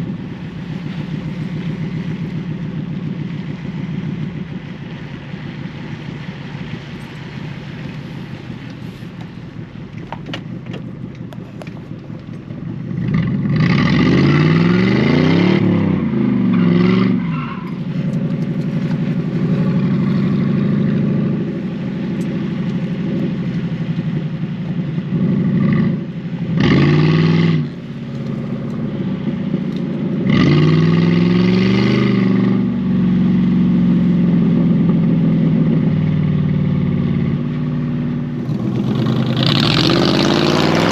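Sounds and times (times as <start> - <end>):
car engine revving hard: 12.7 - 24.3, 25.0 - 35.0, 38.3 - 40.9.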